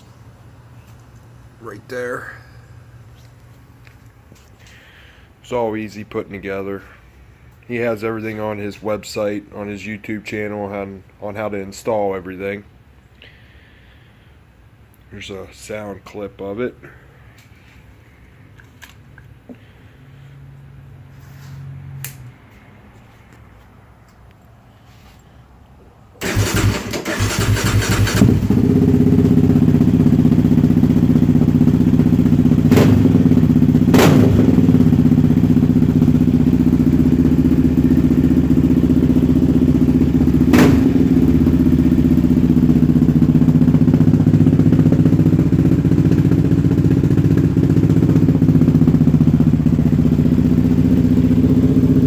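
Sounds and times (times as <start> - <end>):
quad engine starting and idling: 26.2 - 52.0
sharp exhaust cracks: 26.2 - 52.0.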